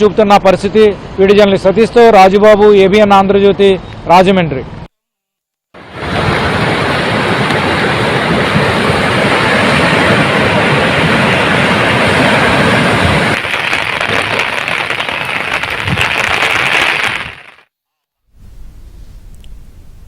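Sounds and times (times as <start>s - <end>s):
gusting wind: 5.8s - 17.7s, 18.3s - 20.0s
heavy rain: 5.8s - 17.7s.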